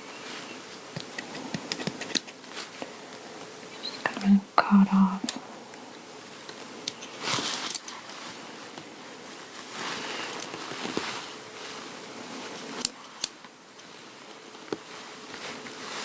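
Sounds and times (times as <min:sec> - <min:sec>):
rustling: 0:00.0 - 0:04.2, 0:05.4 - 0:16.0
scissors cutting material: 0:00.9 - 0:02.4.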